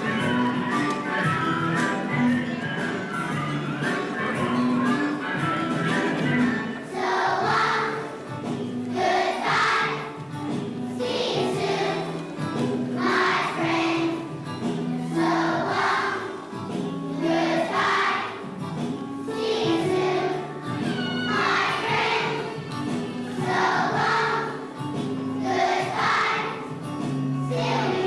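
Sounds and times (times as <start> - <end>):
children's choir singing: 0.0 - 28.0
instrumental accompaniment: 0.0 - 28.0.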